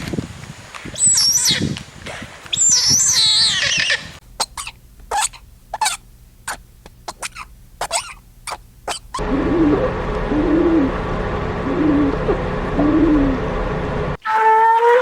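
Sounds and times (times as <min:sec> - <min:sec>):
bird warbling: 0:02.6 - 0:10.9, 0:11.6 - 0:13.4.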